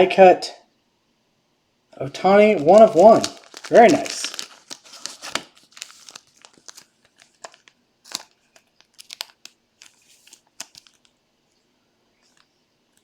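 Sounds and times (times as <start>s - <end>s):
plastic packaging crinkling: 2.1s - 11.2s.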